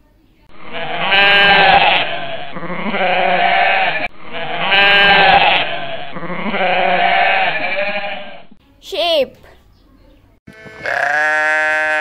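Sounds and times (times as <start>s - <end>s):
goat bleating: 0.7s - 8.5s, 10.5s - 12.0s.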